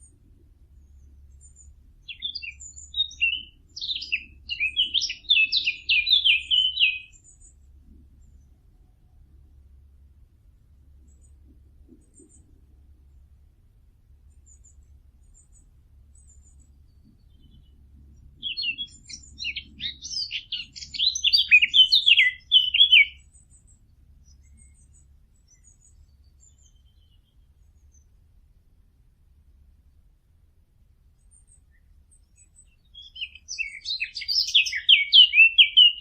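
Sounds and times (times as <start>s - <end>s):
songbird chirping rapidly: 0.0s - 8.8s, 14.3s - 28.3s, 31.1s - 36.0s
distant birds chirping: 0.7s - 9.2s, 14.2s - 28.2s, 31.1s - 36.0s.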